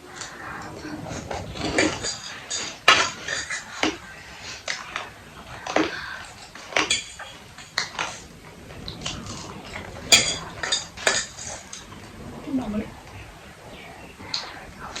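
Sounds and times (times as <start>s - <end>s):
cutlery clinking against dishes: 1.7s - 4.0s, 10.1s - 11.8s.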